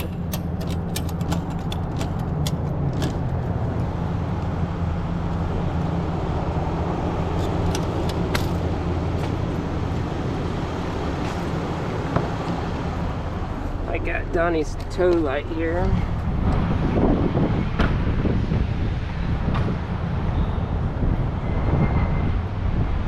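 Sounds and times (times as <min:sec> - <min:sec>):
clicks and rattles in cab: 0:00.0 - 0:03.9, 0:07.3 - 0:10.2
truck engine running: 0:00.0 - 0:20.1.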